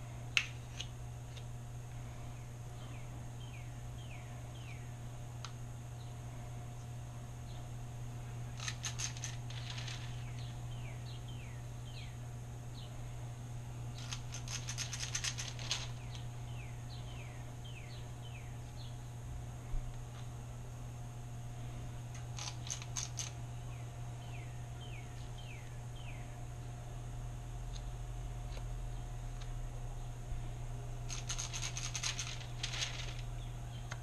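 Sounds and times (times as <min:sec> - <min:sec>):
steady low hum: 0:00.0 - 0:34.0
birds chirping: 0:02.2 - 0:05.1, 0:07.4 - 0:13.2, 0:14.0 - 0:19.1, 0:21.6 - 0:26.4, 0:31.2 - 0:34.0.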